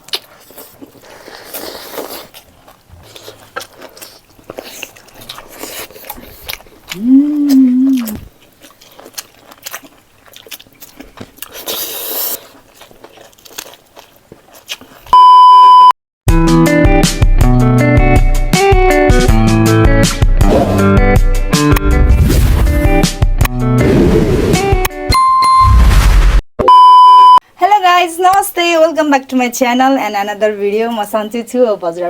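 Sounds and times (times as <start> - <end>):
chewing and biting: 0.0 - 15.1
person humming: 7.0 - 8.3
loud steady beep tone: 26.6 - 27.4.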